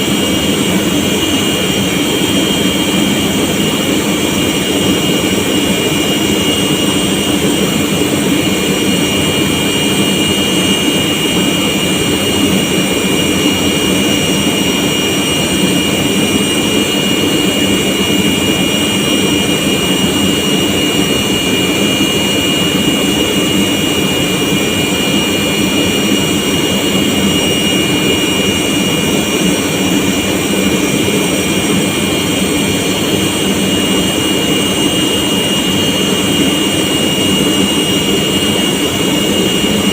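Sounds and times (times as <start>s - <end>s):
air compressor running: 0.0s - 39.9s.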